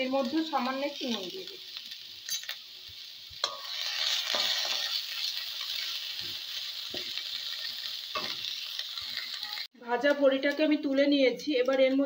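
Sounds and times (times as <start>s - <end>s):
leaves sizzling in oil: 0.0s - 12.0s
spatula scraping pan: 3.4s - 9.7s.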